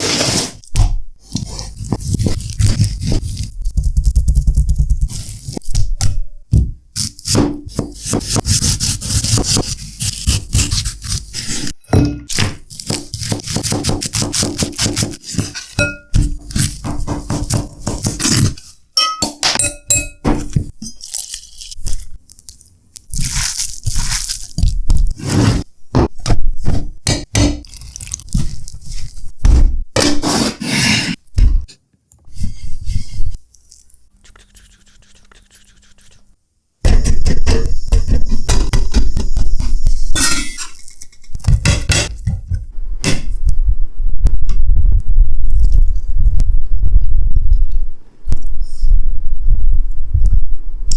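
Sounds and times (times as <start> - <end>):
kitchen utensils clinking and scraping: 19.0 - 21.1, 40.0 - 41.4.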